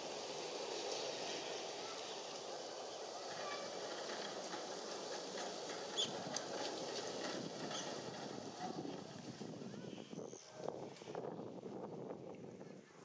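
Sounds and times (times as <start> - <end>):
outdoor rumble: 0.0 - 12.5
small birds chirping: 5.9 - 6.2.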